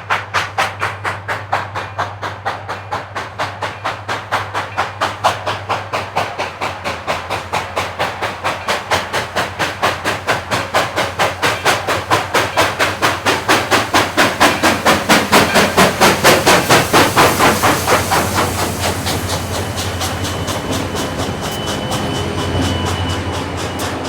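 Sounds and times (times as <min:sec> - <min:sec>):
steam locomotive chuffing: 0:00.0 - 0:24.0
train rolling: 0:00.0 - 0:24.0
thin high tone: 0:18.9 - 0:24.0.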